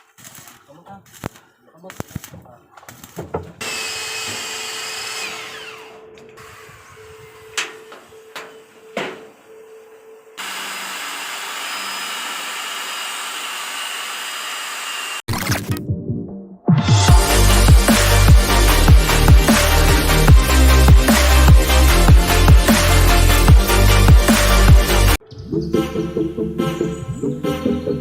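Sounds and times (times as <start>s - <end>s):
power tool running and whining: 3.6s - 15.3s.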